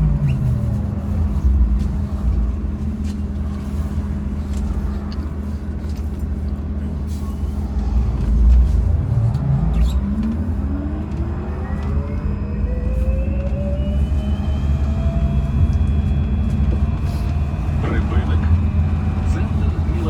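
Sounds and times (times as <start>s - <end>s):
low road rumble: 0.0s - 20.0s
electric motor whine rising: 9.4s - 17.0s.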